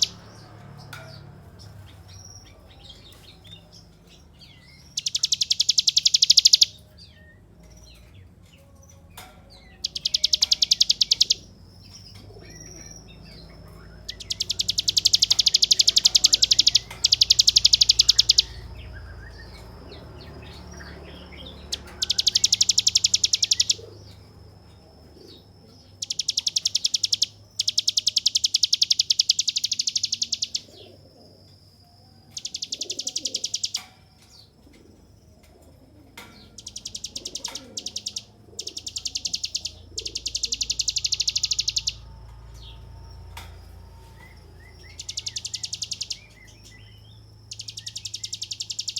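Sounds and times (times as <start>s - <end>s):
bird singing rattling trills: 0.0s - 48.9s.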